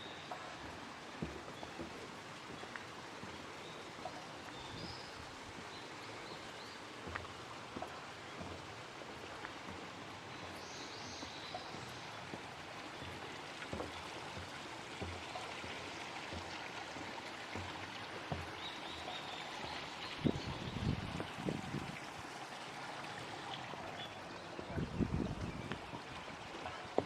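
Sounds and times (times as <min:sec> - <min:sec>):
stream babbling: 0:00.0 - 0:27.0.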